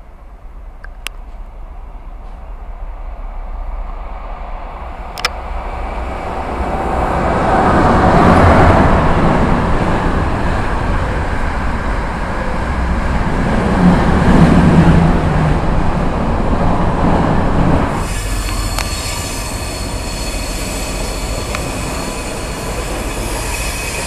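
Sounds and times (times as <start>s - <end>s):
freight train wheels rumbling on rails: 0.0s - 24.0s
sharp tick: 21.5s - 21.7s.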